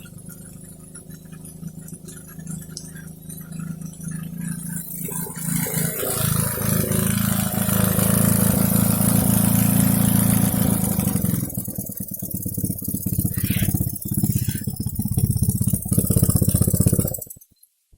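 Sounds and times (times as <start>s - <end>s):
small engine running: 0.0s - 17.5s.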